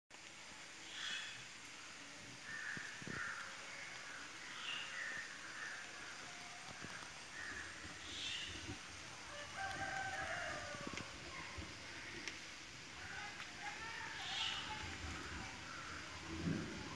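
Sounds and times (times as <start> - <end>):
long steady bird call: 0.4 - 16.9
birds chirping: 2.5 - 9.1, 13.0 - 16.3.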